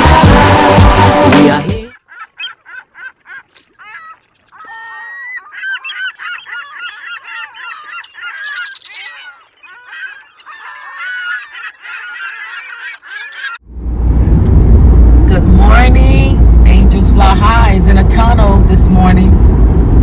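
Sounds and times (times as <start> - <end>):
flock of birds calling: 1.9 - 13.6.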